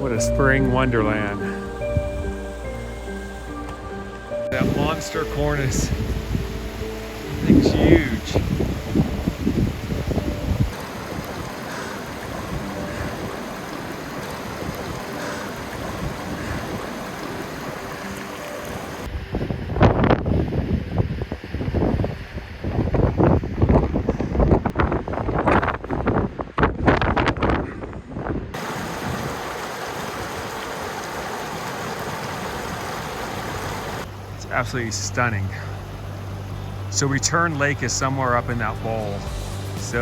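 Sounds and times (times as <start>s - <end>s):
running water: 0.0s - 19.1s, 28.6s - 40.0s
stream rushing: 0.0s - 23.7s, 28.6s - 40.0s
wind buffeting microphone: 0.0s - 34.1s.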